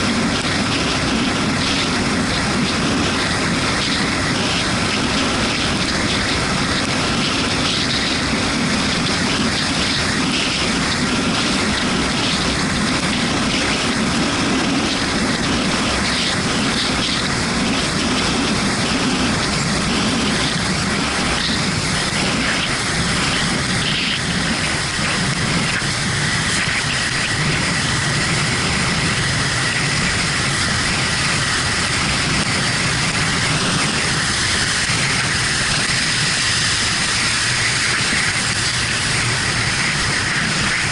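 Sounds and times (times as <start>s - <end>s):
motorcycle engine running: 0.0s - 40.9s
wind rush: 0.0s - 40.9s
tyre hiss on wet road: 18.2s - 40.9s.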